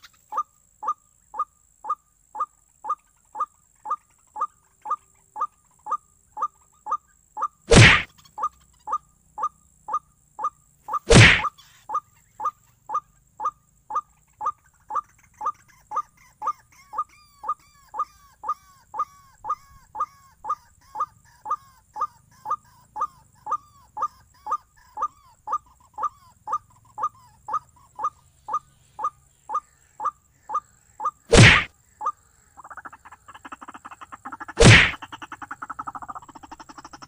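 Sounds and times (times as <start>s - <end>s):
waterhen calls: 0.0s - 37.0s
loud sharp whack: 7.7s - 8.1s, 11.1s - 11.5s, 31.3s - 31.7s, 34.6s - 35.0s.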